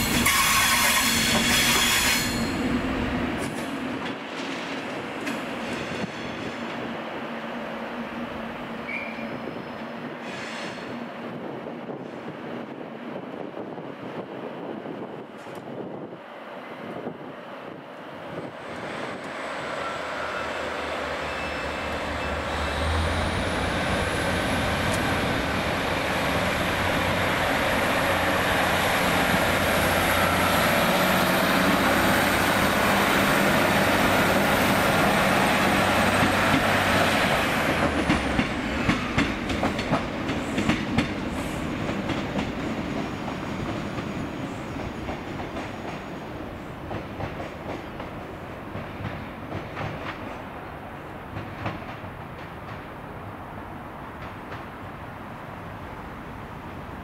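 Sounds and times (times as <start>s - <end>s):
train running: 0.0s - 57.0s
wheels clacking over rail joints: 36.1s - 44.2s.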